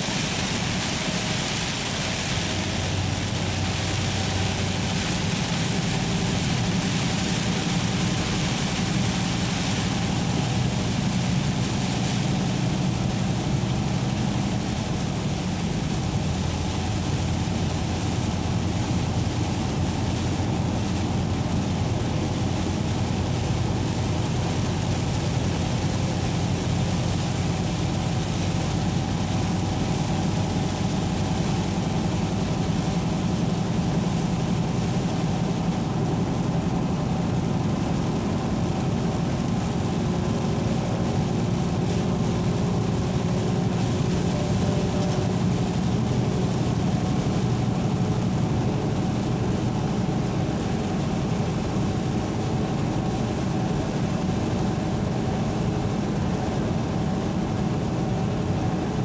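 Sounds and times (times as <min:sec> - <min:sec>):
low mechanical rumble: 0:00.0 - 0:59.0.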